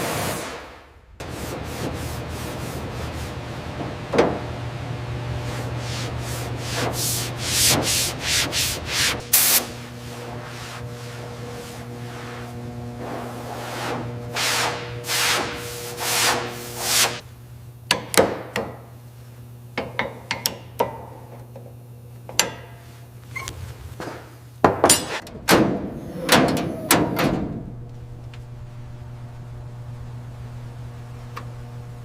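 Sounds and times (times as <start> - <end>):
low hum: 22.8 - 32.0
loud clattering knocks: 24.6 - 27.8.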